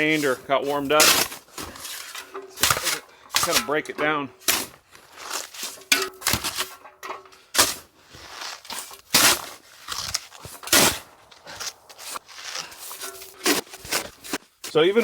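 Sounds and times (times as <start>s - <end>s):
shovel crunching and scraping snow: 0.0s - 15.0s.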